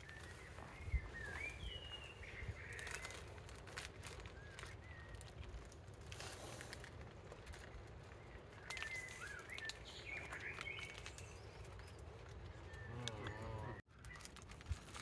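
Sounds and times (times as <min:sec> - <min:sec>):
birds chirping: 0:00.0 - 0:05.4, 0:07.8 - 0:13.9
faint clicks: 0:12.7 - 0:13.6.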